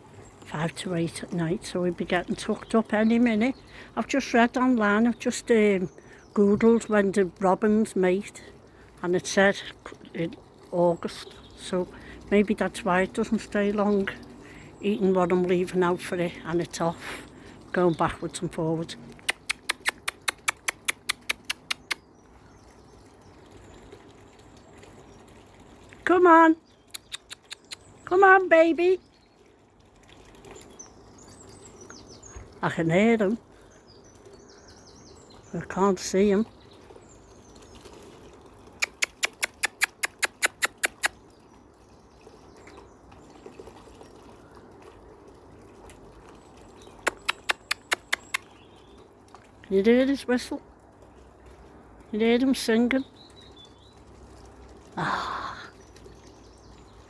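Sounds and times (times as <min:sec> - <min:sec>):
bird rapid ticking call: 0:19.2 - 0:22.2, 0:26.6 - 0:28.1, 0:38.8 - 0:41.2, 0:46.8 - 0:48.9.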